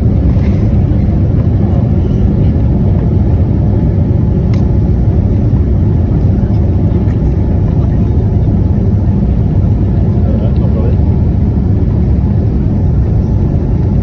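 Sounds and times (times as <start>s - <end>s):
airplane cabin engine rumble: 0.0s - 14.0s.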